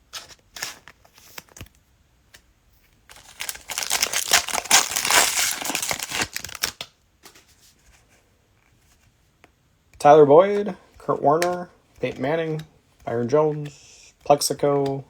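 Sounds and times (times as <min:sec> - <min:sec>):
card pack wrapper crinkling: 0:03.1 - 0:06.9.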